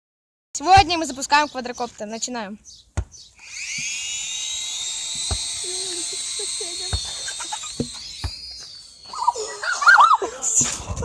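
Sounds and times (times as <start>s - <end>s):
quadcopter motors whining: 3.2s - 11.0s.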